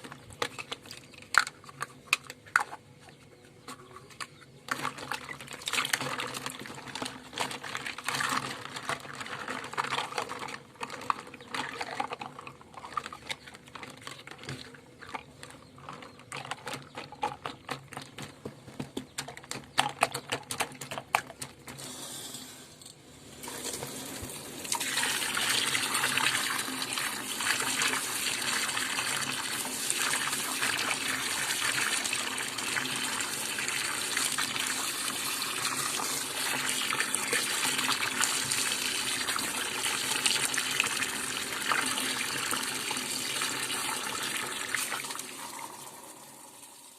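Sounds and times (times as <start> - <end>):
plastic toys clattering in water: 0.0 - 2.8, 3.6 - 21.9, 23.4 - 45.4
water gushing from tap: 23.4 - 46.9.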